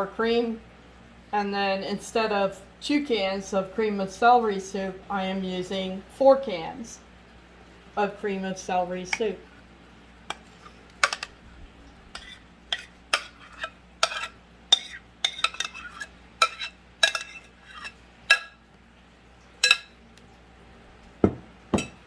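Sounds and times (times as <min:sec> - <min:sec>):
spoon clinking against cans and bowl: 0:10.3 - 0:11.4, 0:12.2 - 0:18.6, 0:19.6 - 0:20.0, 0:21.8 - 0:22.0.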